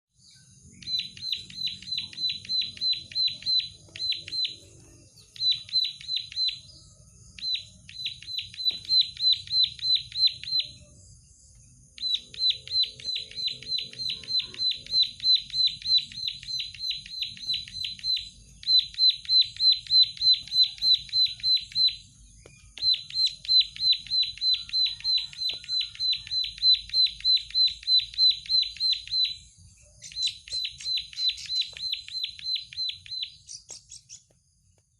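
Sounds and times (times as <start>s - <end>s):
bird singing rapid high notes: 0.4s - 11.0s, 11.9s - 34.3s.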